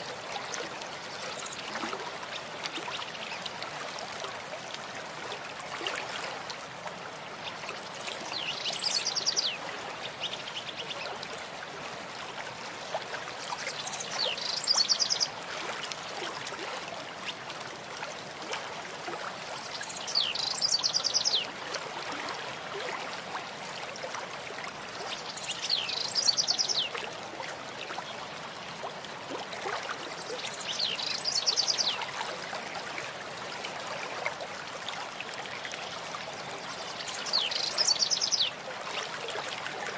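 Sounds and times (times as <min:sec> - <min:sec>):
stream running: 0:00.0 - 0:39.9
songbird singing: 0:08.3 - 0:10.9, 0:13.6 - 0:15.3, 0:19.6 - 0:21.5, 0:25.1 - 0:27.0, 0:30.2 - 0:32.0, 0:36.7 - 0:38.6.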